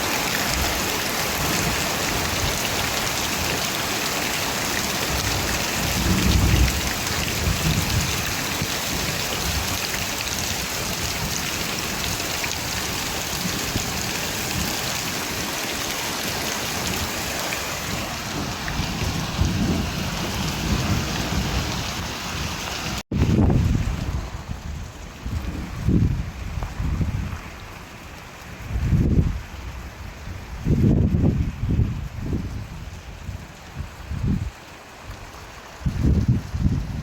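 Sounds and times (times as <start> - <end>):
steady rain falling: 0.0 - 37.0
low rumbles of thunder: 5.1 - 12.2, 17.9 - 22.5, 23.1 - 27.8.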